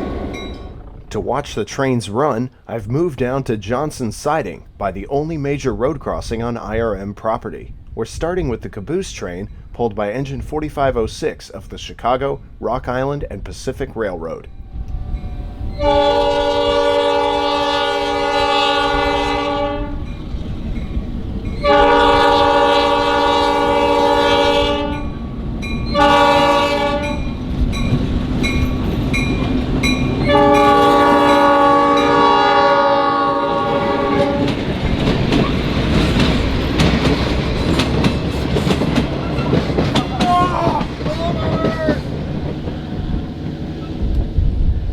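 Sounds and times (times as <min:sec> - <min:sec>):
train engine rumble: 0:00.0 - 0:44.9
locomotive air horn blasts: 0:14.7 - 0:20.1, 0:21.6 - 0:25.2, 0:25.9 - 0:27.4, 0:30.1 - 0:34.6
wheels clicking over rail joints: 0:34.1 - 0:44.3.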